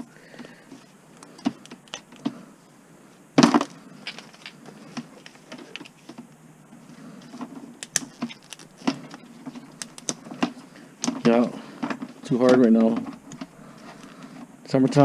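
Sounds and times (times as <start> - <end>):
plastic crunch: 3.4 - 6.2, 7.1 - 14.2
small plastic clicks and snaps: 9.7 - 10.2.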